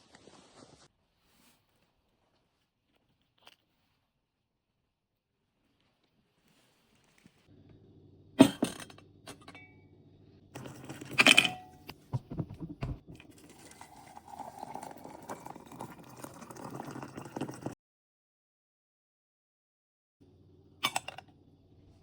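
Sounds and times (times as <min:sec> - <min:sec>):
soft rustling: 0:00.0 - 0:04.3, 0:05.4 - 0:07.5
hard objects clinking and knocking: 0:10.6 - 0:13.4.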